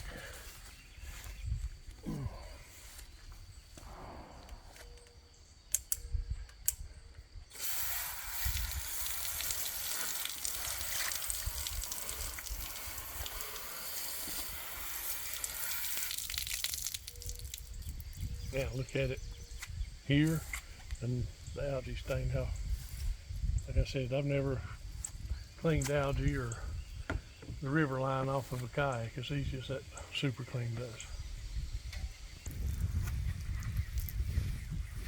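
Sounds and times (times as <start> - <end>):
sharp clicks: 4.9 - 6.9
garden hose spraying water: 7.5 - 18.9.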